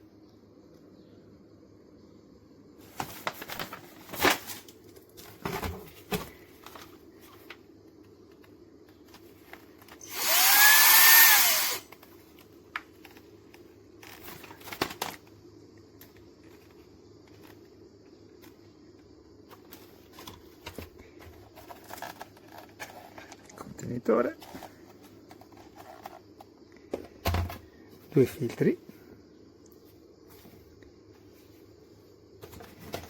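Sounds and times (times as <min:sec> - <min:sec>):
cordless vacuum motor running: 0:10.0 - 0:11.9.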